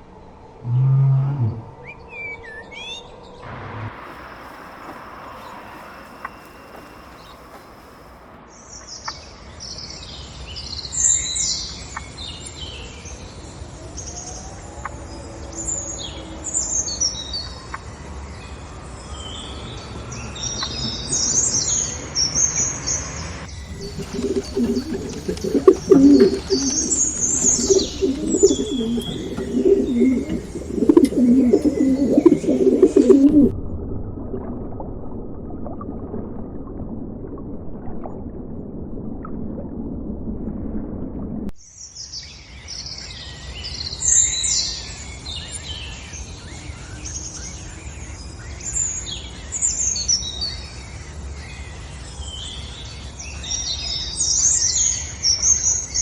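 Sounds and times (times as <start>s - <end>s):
small birds chirping: 4.0s - 8.0s, 23.5s - 33.5s
pigeons cooing: 4.1s - 8.0s, 23.5s - 33.5s.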